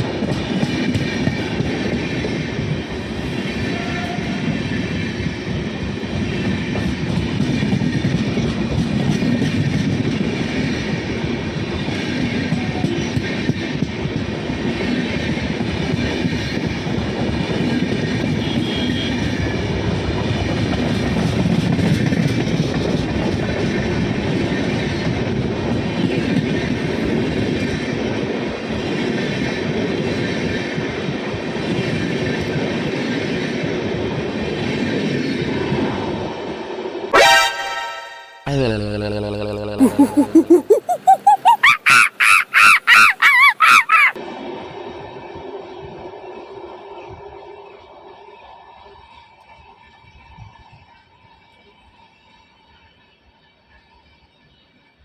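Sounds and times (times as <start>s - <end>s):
train rumbling past on rails: 0.0s - 37.1s, 44.2s - 55.0s.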